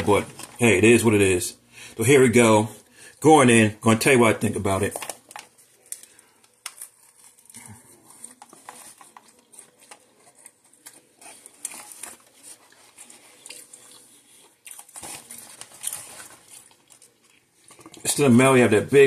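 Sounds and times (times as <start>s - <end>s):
faint crisp crackles: 4.0s - 19.0s
person chewing food: 5.2s - 18.1s.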